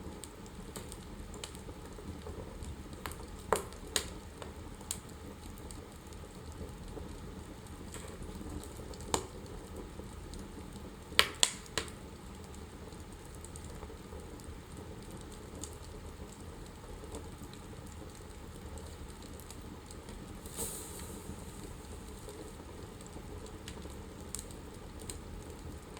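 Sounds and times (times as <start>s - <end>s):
wood fire crackling: 0.0s - 25.9s
loud fire pops: 2.9s - 5.8s, 7.7s - 10.4s, 11.0s - 12.6s, 17.8s - 25.8s.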